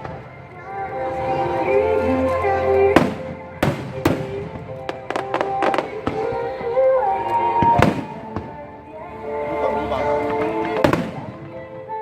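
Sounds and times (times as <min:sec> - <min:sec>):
fireworks bangs: 0:00.0 - 0:00.7, 0:02.8 - 0:07.0, 0:07.6 - 0:08.8, 0:10.2 - 0:11.8
music: 0:00.0 - 0:12.0.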